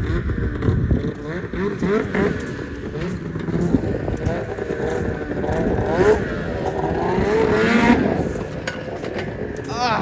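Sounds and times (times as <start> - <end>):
snowmobile engine revving: 1.3 - 8.2.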